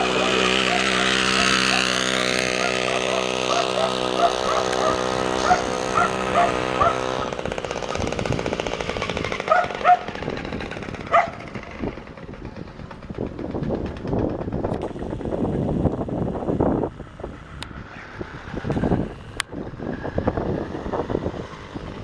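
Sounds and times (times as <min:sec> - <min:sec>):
two-stroke engine running: 0:00.0 - 0:22.0
small dog yapping: 0:02.6 - 0:07.3, 0:09.5 - 0:10.1.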